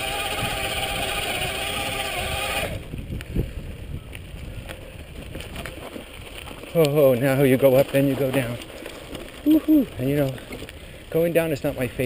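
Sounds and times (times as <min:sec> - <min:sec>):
electric bike motor whining: 0:00.0 - 0:03.6
tyres rolling on dirt trail: 0:00.0 - 0:12.0.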